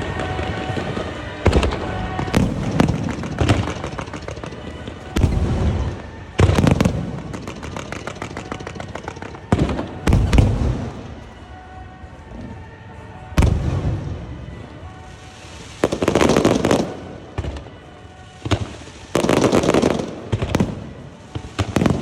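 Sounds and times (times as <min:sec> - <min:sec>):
fireworks banging: 0:00.0 - 0:11.2, 0:15.2 - 0:17.8, 0:18.4 - 0:22.0
fireworks crackling: 0:00.0 - 0:22.0.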